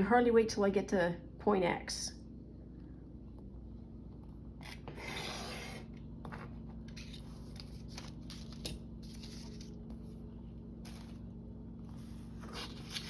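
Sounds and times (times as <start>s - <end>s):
paper rustling: 6.3s - 11.3s, 11.9s - 13.0s.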